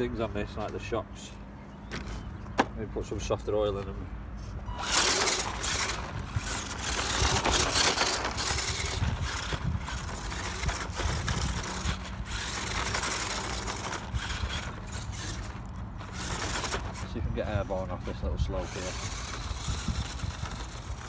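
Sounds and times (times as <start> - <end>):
small electric motor running: 4.7 - 21.0
toy truck tyres crunching on dirt: 4.7 - 21.0.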